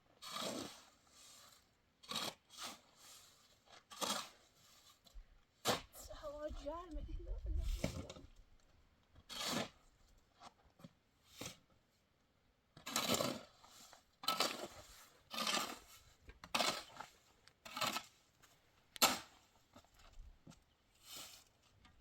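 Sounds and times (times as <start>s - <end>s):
rasping tearing strokes: 12.9s - 18.2s.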